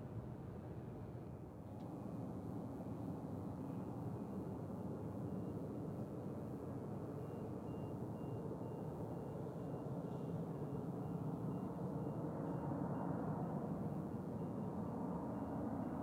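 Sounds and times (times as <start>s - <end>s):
low rumble of airport noise: 0.0s - 16.0s
vehicle reversing alarm beeping: 7.0s - 16.0s.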